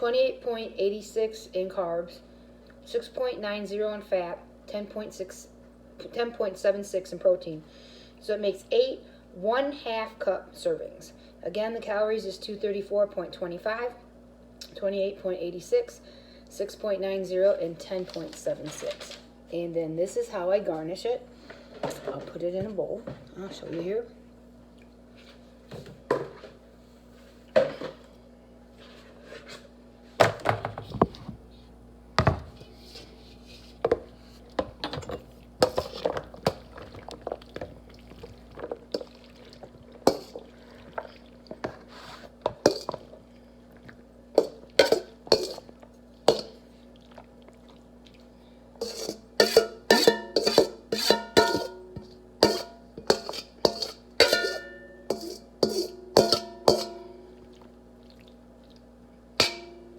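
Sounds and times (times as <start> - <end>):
utensil clinking against bowl: 42.5 - 43.1, 44.4 - 45.7, 48.8 - 57.2, 59.4 - 59.9.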